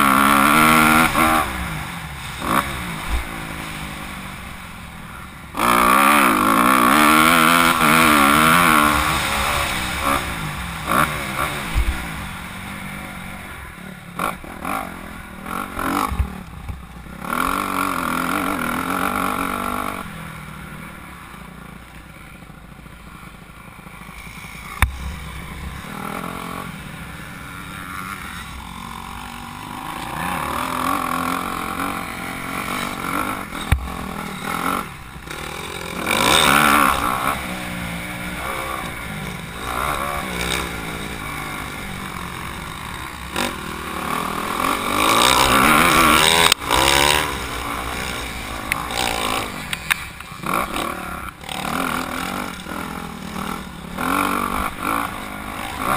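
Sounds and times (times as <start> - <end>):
motocross bike engine revving: 0.0 - 55.9.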